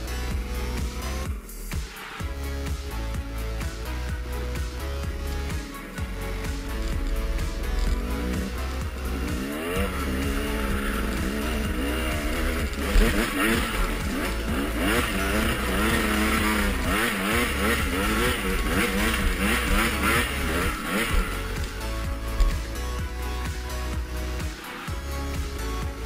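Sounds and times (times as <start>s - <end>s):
background music: 0.0s - 26.0s
motorcycle engines revving: 2.0s - 26.0s.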